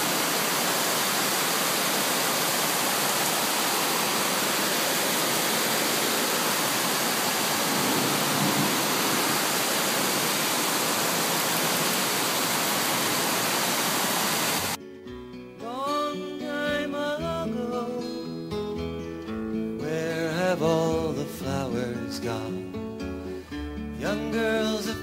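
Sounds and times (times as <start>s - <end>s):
floodwater rushing: 0.0s - 14.8s.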